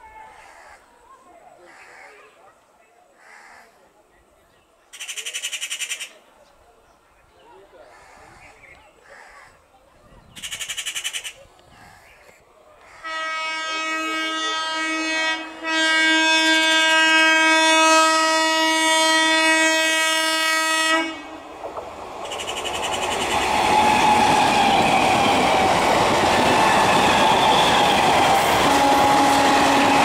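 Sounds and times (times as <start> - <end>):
train horn blast: 13.0 - 21.4, 28.4 - 30.0
electric train running past: 13.1 - 30.0.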